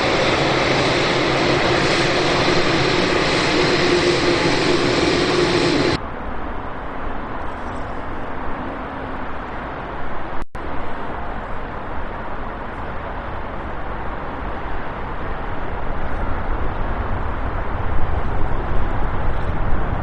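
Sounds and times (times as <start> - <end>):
jet engines roaring: 0.0 - 6.4.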